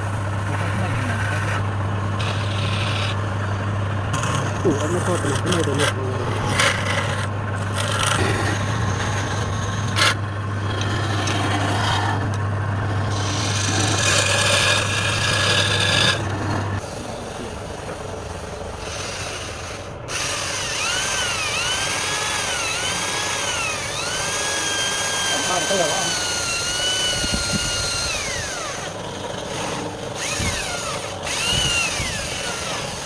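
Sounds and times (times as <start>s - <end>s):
motor hum: 0.0s - 33.0s
tool rasping against wood: 2.2s - 3.2s, 13.1s - 33.0s.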